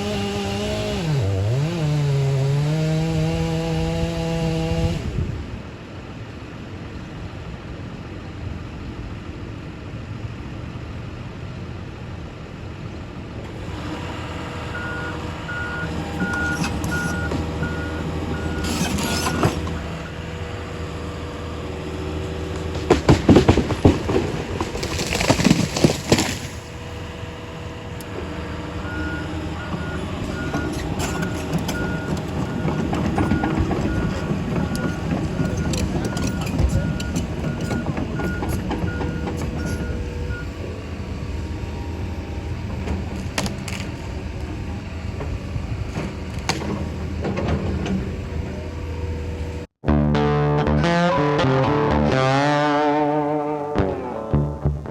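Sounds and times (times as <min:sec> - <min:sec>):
diesel engine running: 0:00.0 - 0:06.6, 0:09.8 - 0:54.9
back-up alarm beeping: 0:14.7 - 0:20.2, 0:28.8 - 0:40.6.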